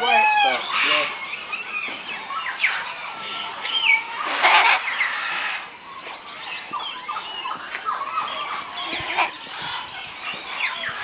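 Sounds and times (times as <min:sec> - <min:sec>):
loud parrot squawk: 0:00.0 - 0:01.3, 0:03.8 - 0:05.7, 0:08.2 - 0:09.5
parrots whistling: 0:00.0 - 0:05.7.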